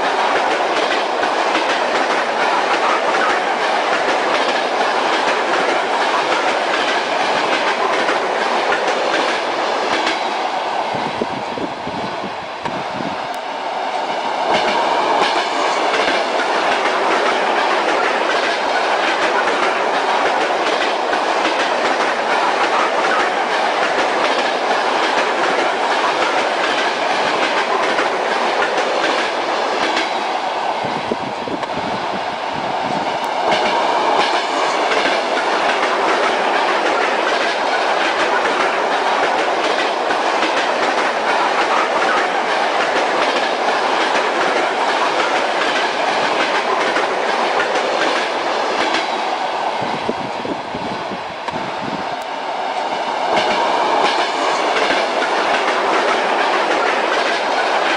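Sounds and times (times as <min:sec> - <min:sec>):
railway carriage rumble: 0:00.0 - 0:57.9.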